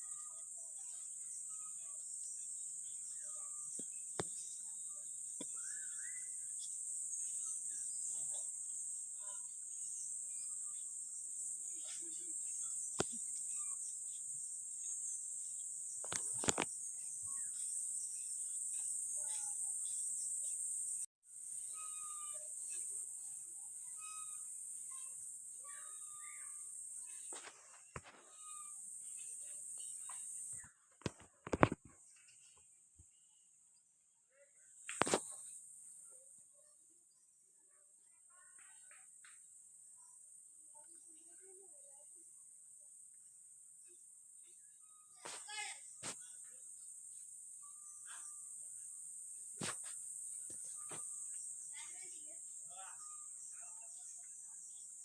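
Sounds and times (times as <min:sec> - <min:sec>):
short bird chirps: 0:00.0 - 0:08.5, 0:21.6 - 0:30.7
insects droning: 0:00.0 - 0:33.4, 0:34.2 - 0:55.0.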